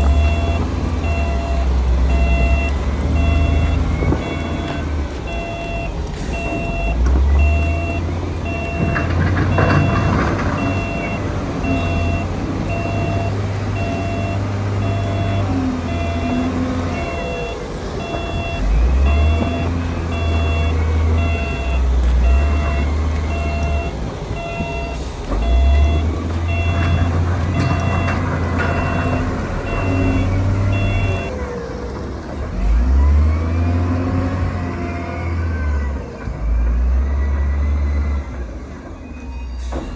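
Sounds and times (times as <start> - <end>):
reversing alarm beeping: 0.0 - 31.3
diesel engine running: 0.0 - 39.9.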